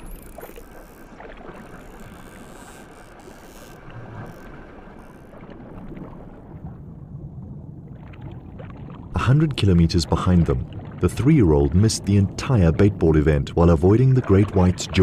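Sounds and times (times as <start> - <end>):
water rushing: 0.0 - 7.1.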